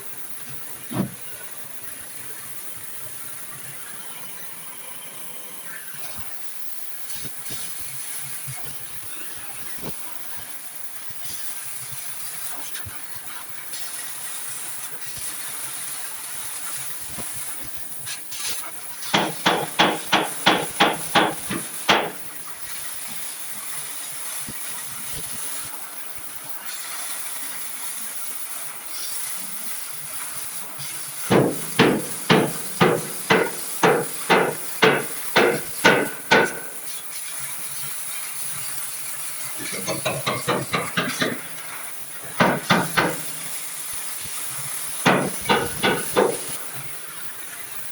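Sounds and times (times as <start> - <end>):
hammer striking sheet steel: 19.1 - 22.3, 31.3 - 37.0, 39.6 - 43.6, 45.0 - 46.9.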